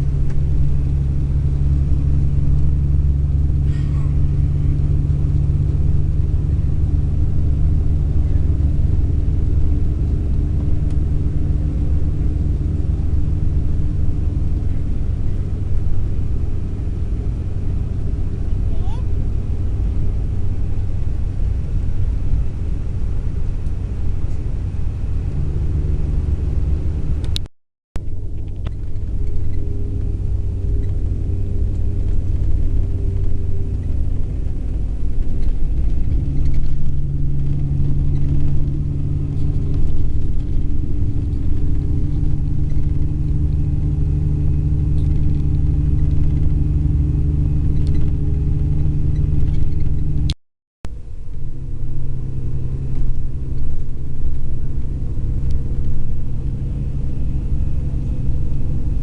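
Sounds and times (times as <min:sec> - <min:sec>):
coach engine and road rumble: 0:00.0 - 0:59.0.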